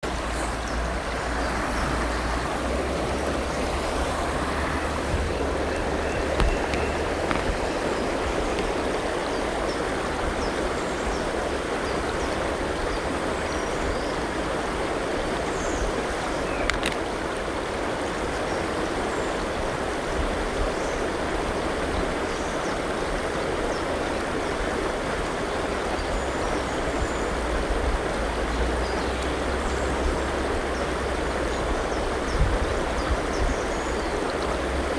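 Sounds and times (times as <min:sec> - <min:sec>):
river water flowing over rocks: 0:00.0 - 0:34.9
faint bird calls: 0:03.5 - 0:09.5.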